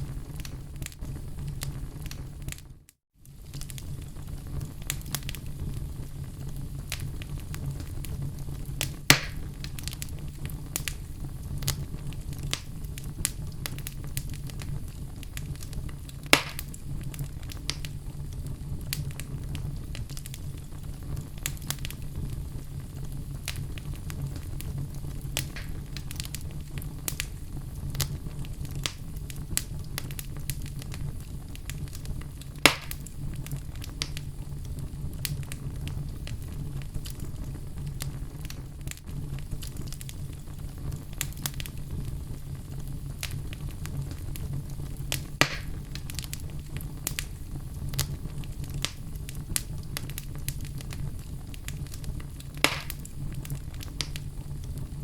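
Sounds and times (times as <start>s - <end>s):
fire flames rumbling and crackling: 0.0s - 55.0s
sharp fire pops: 0.0s - 55.0s.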